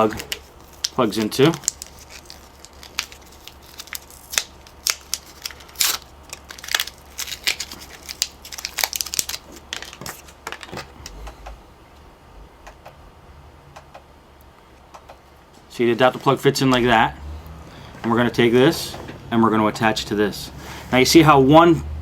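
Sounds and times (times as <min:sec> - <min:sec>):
crinkling: 0:00.0 - 0:11.3.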